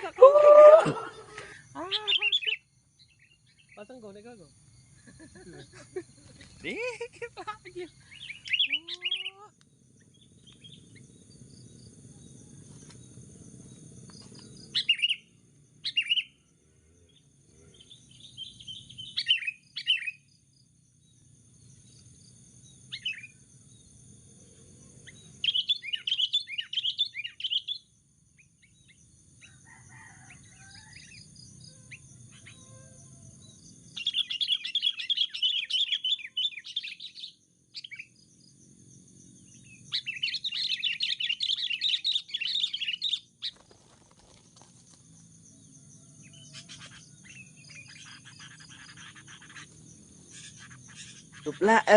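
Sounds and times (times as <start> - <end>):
bulbuls chattering calls: 1.8 - 2.6, 6.3 - 9.5, 46.5 - 51.9.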